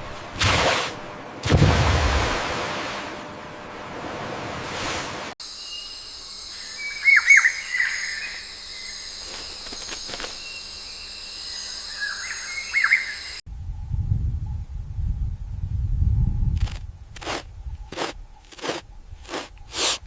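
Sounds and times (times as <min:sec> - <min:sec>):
high insect drone: 0:05.4 - 0:13.4
low rustling crunching: 0:16.6 - 0:20.0.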